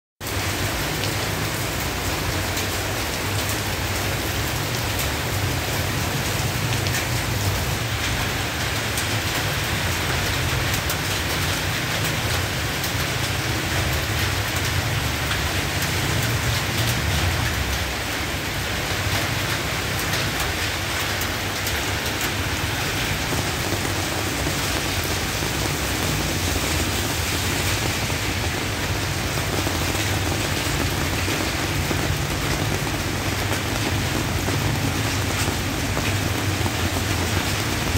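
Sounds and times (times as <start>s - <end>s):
heavy rain on wet pavement: 0.2s - 37.9s.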